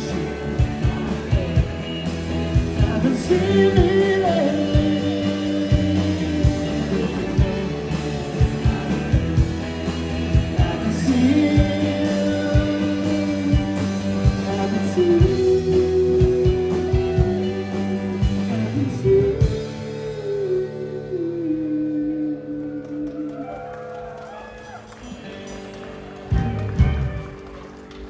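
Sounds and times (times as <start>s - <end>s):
drums beating: 0.0s - 19.8s, 24.0s - 28.0s
electric guitars and bass: 0.0s - 28.0s.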